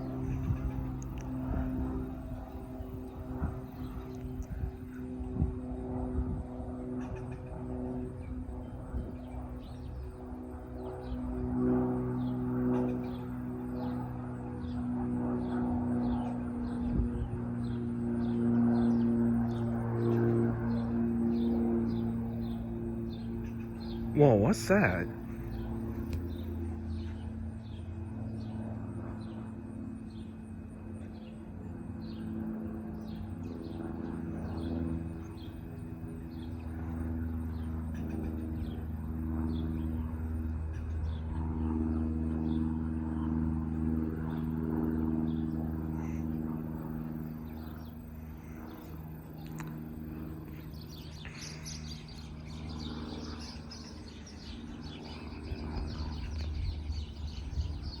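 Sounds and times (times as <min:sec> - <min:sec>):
propeller aircraft engine droning: 0:00.0 - 0:58.0
bird chirping: 0:50.5 - 0:58.0.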